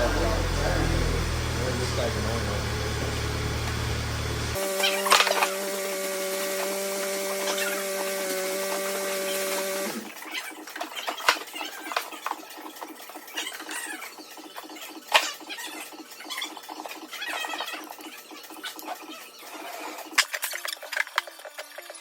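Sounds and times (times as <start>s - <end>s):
steady machine hum: 0.0s - 10.2s
wet sandpaper squeaky rubbing: 4.6s - 11.9s.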